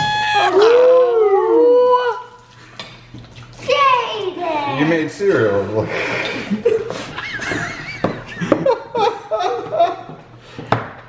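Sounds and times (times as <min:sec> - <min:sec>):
people laughing: 0:05.9 - 0:10.2.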